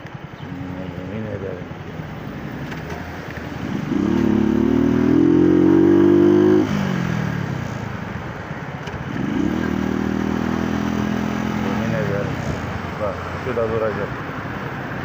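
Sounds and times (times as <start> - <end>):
motorcycle engine accelerating: 2.2 - 8.2, 8.8 - 12.7.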